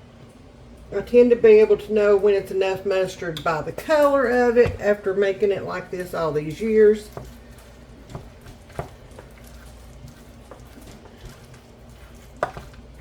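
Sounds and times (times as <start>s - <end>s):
salad squishing in a bowl: 6.5s - 13.0s.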